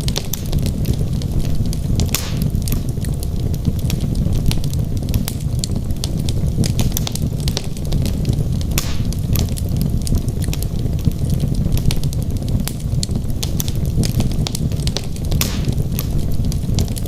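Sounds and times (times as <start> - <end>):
fire hissing: 0.0 - 17.0
logs crackling and popping: 0.0 - 17.0
low rumble of flames: 0.0 - 17.0.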